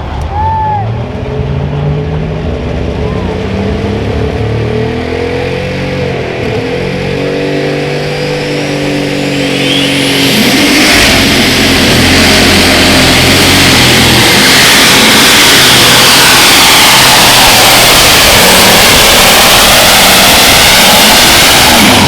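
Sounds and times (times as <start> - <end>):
tractor engine at full throttle: 0.9 - 22.0
turbo whine: 5.3 - 22.0.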